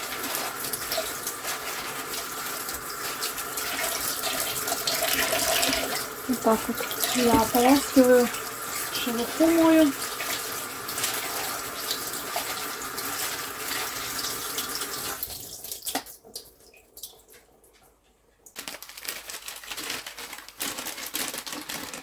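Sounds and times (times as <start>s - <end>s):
handling and rustling: 0.0s - 3.4s, 18.6s - 22.0s
kitchen tap running: 0.0s - 17.6s.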